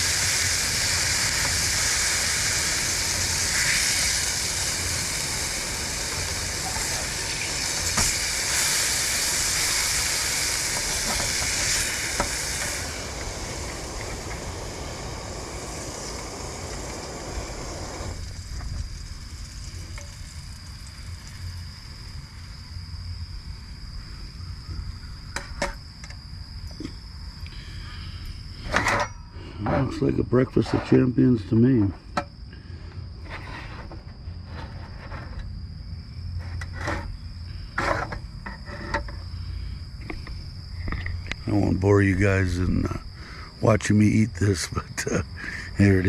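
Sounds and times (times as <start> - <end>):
patties sizzling in a frying pan: 0.0 - 22.4
insects droning: 0.0 - 46.0
scraping or rustling noises: 30.6 - 31.1, 33.2 - 35.5, 36.4 - 37.2.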